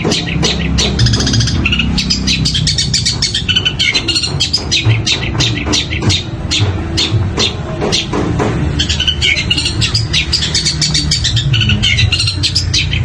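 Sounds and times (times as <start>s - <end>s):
bird singing sharp calls: 0.0s - 13.0s
rapid bird chirps and twitters: 0.0s - 13.0s.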